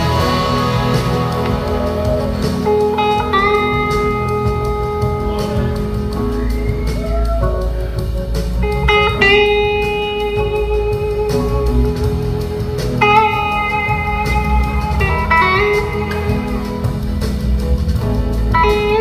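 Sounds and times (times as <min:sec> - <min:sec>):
electric slide guitar solo: 0:00.0 - 0:08.0, 0:08.6 - 0:16.9
bass and drums: 0:00.0 - 0:19.0.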